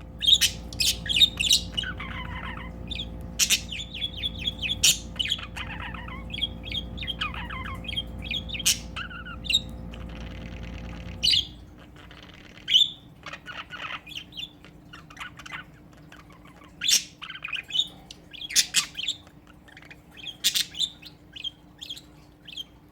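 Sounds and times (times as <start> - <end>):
budgies chirping: 0.0 - 22.9
low steady hum: 0.0 - 22.9
budgie squawks: 0.1 - 22.8.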